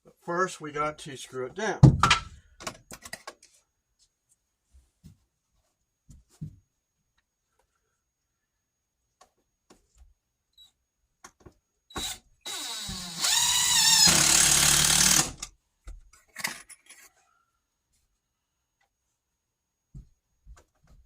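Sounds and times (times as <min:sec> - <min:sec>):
power drill whirring: 0:11.9 - 0:15.5.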